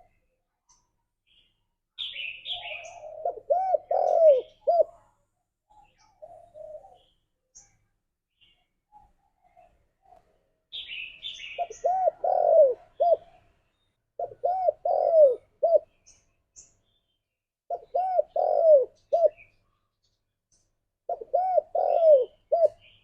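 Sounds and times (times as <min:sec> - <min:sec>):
dove cooing: 0:02.2 - 0:05.0, 0:06.0 - 0:07.1, 0:10.8 - 0:13.5, 0:14.2 - 0:16.0, 0:17.7 - 0:19.5, 0:21.1 - 0:23.0
small bird high chirps: 0:10.7 - 0:12.4.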